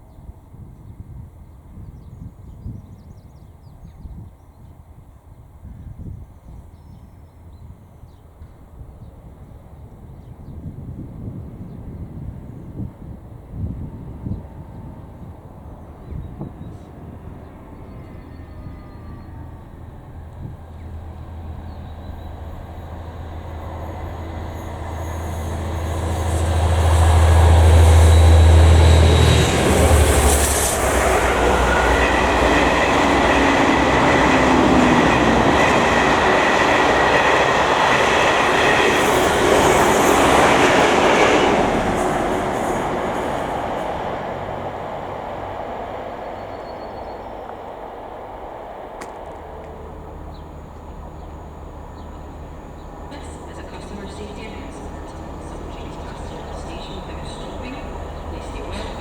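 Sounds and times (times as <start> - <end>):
locomotive engine drone: 13.5 - 59.0
train wheel noise: 14.5 - 59.0
high wheel squeal: 22.0 - 36.1.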